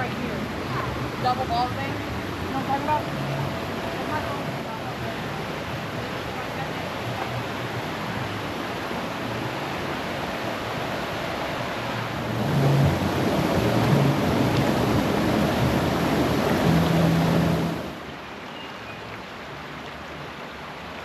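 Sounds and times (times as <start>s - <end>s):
running water rushing: 0.0s - 21.0s.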